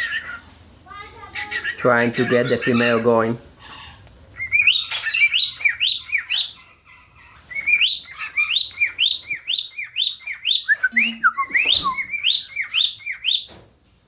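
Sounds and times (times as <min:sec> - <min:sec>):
cockatiel whistled chirps: 0:04.4 - 0:06.5, 0:07.5 - 0:13.5.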